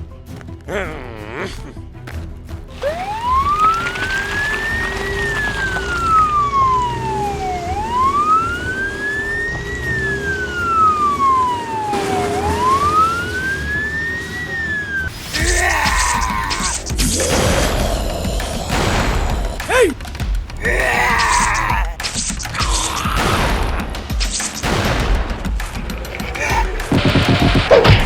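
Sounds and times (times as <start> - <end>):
siren wailing: 2.8 - 17.3.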